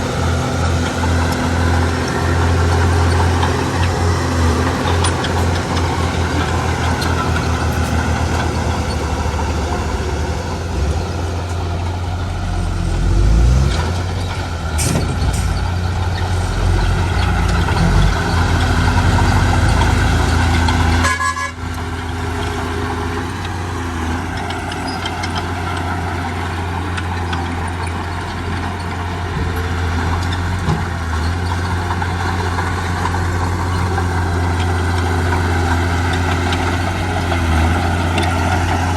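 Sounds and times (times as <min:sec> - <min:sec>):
heavy diesel engines running: 0:00.0 - 0:38.9.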